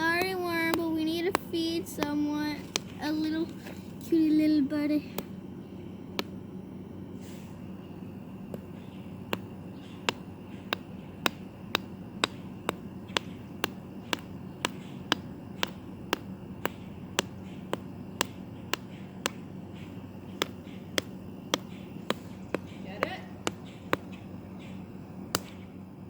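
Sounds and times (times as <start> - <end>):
hard tool tapping hard surface: 9.3 - 19.4, 20.3 - 24.1.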